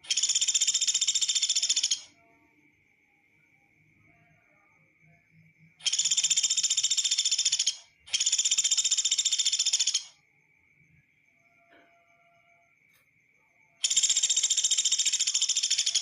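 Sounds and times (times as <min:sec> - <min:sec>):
woodpecker high-pitched trills: 0:00.0 - 0:02.3, 0:05.8 - 0:10.3, 0:13.7 - 0:16.0.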